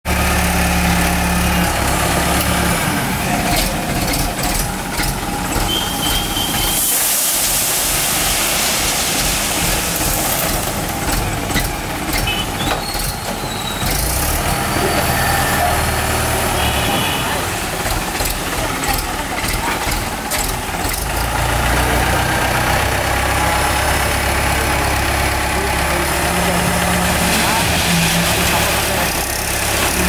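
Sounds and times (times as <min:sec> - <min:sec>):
tractor diesel engine under load: 0:00.0 - 0:30.0
hiss: 0:05.8 - 0:10.7.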